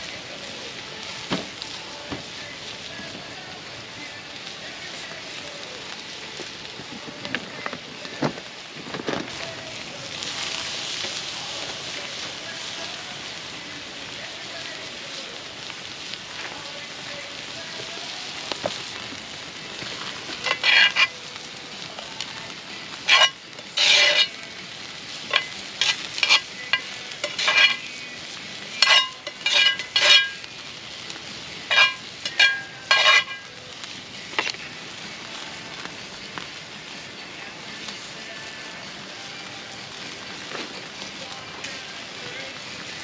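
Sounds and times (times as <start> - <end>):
food sizzling in a pan: 0.0 - 43.0
metal utensil scraping a pan: 20.3 - 21.2, 23.0 - 24.4, 25.2 - 28.0, 28.8 - 30.5, 31.6 - 33.6, 34.3 - 34.6.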